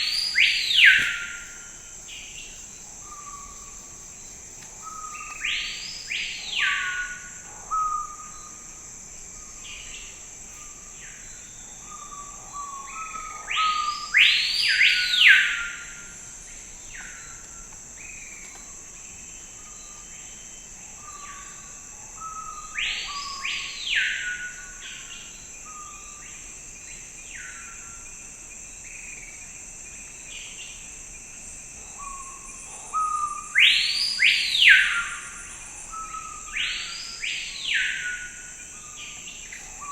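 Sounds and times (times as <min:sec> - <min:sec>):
high insect drone: 0:00.0 - 0:39.9
birds calling rising and falling: 0:00.1 - 0:01.5.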